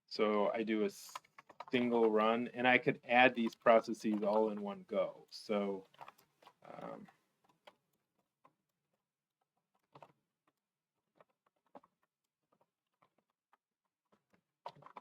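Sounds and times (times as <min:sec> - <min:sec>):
faint keyboard typing: 0:00.5 - 0:08.6.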